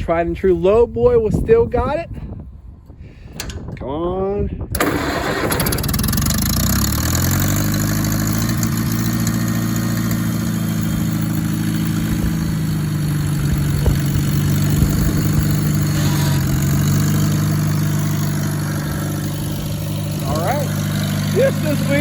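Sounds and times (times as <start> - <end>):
tractor engine idling: 4.7 - 22.0.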